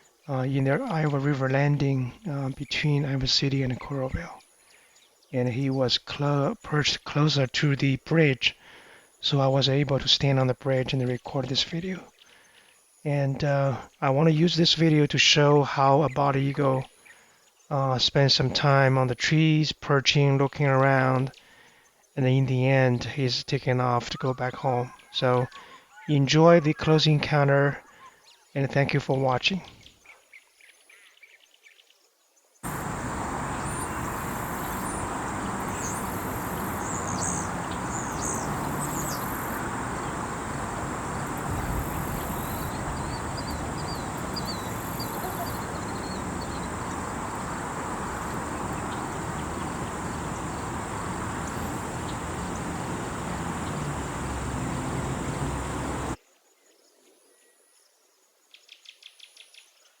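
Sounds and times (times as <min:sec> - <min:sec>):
faint insect buzzing: 0:32.6 - 0:56.2
high bird chirps: 0:32.6 - 0:56.2
outdoor noise haze: 0:32.6 - 0:56.2
short bird call notes: 0:32.6 - 0:56.2.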